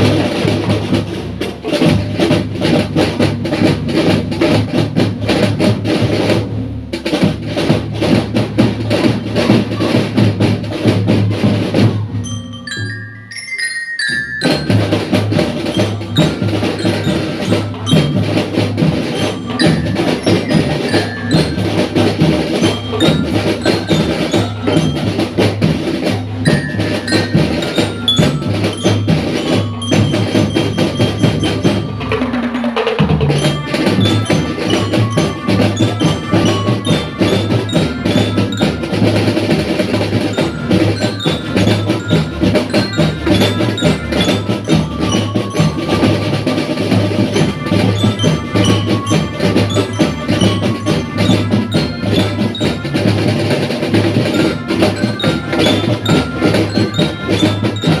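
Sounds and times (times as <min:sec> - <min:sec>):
rapid drum strokes: 0:00.0 - 0:58.0
glockenspiel melody: 0:11.7 - 0:58.0.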